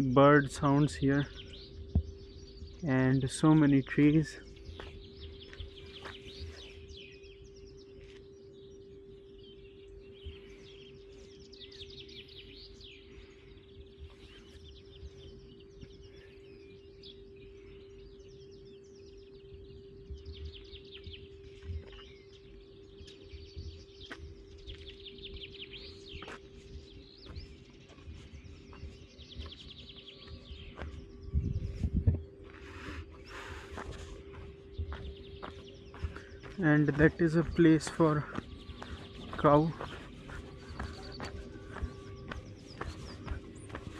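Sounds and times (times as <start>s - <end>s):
songbirds singing: 0.0s - 43.9s
steady low hum: 0.0s - 43.9s.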